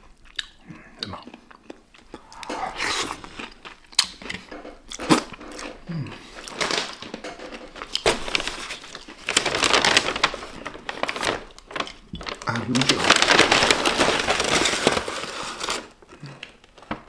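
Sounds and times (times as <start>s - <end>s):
crunching and chewing fried chicken: 0.0s - 17.0s
paper bag rustling: 6.5s - 17.0s.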